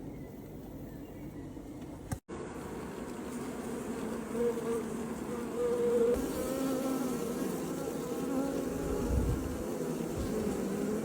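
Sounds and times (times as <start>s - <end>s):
bee buzzing in flight: 2.3s - 11.0s.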